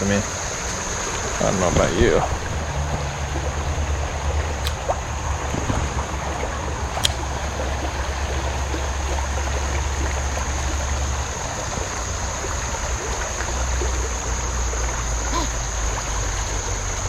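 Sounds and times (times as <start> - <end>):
creek water rushing over rapids: 0.0 - 17.0
sharp click: 6.9 - 7.2.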